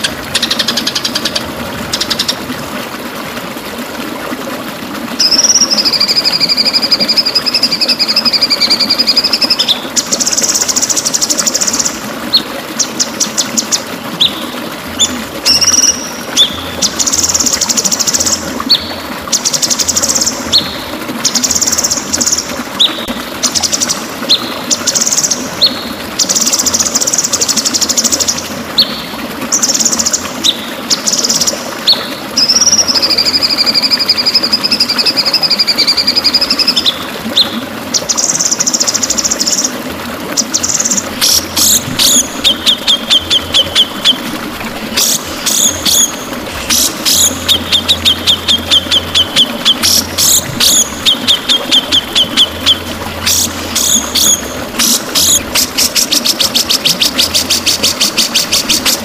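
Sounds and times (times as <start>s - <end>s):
bird singing buzzy trills: 5.2s - 39.7s, 40.4s - 59.0s
bird whistled notes: 46.7s - 54.4s.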